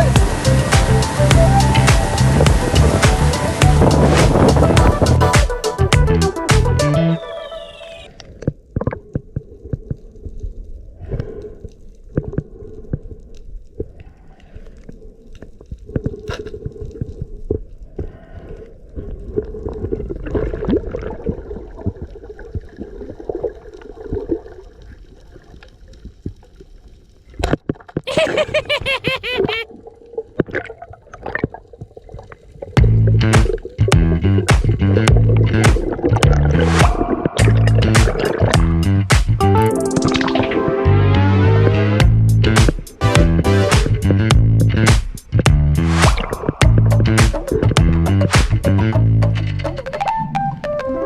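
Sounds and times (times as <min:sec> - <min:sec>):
underwater rumble and gurgling: 0:08.2 - 0:28.0, 0:29.7 - 0:38.9, 0:46.2 - 0:50.2.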